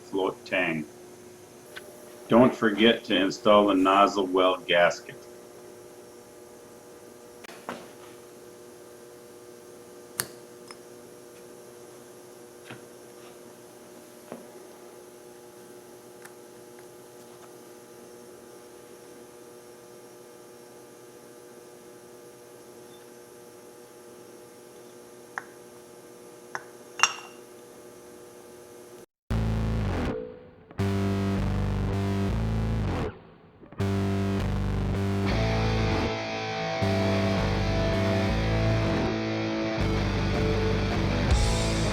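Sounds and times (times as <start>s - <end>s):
electrical hum: 0.0s - 41.9s.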